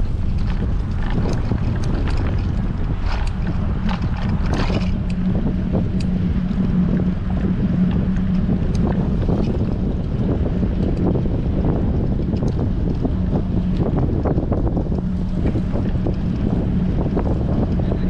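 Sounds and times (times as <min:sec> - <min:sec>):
light clicks and rattles: 0:00.0 - 0:06.2
wind buffeting microphone: 0:00.0 - 0:18.0.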